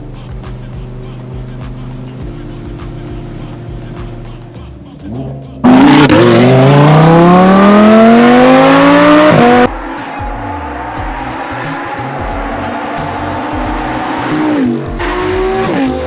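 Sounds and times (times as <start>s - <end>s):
sports car accelerating hard: 5.1s - 9.7s, 10.5s - 16.0s.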